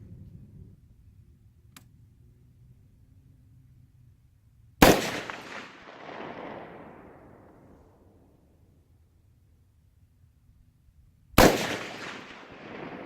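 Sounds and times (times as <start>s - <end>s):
rifle shot with rolling echo: 4.8s - 8.4s, 11.4s - 13.0s.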